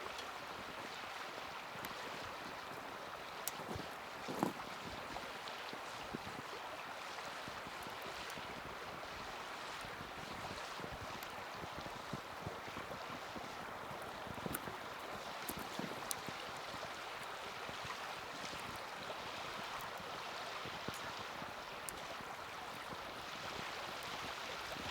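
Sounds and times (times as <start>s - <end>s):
fire crackling and popping: 13.6s - 17.3s.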